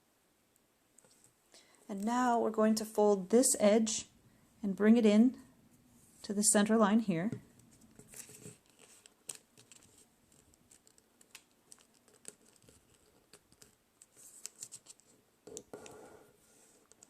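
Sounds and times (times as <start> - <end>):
paper rustle: 7.7 - 15.2
paper being folded: 7.8 - 15.1.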